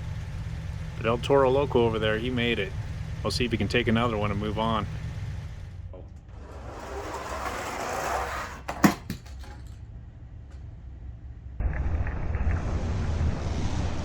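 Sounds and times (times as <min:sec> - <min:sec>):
toy trucks rolling on plastic track: 0:06.3 - 0:09.8.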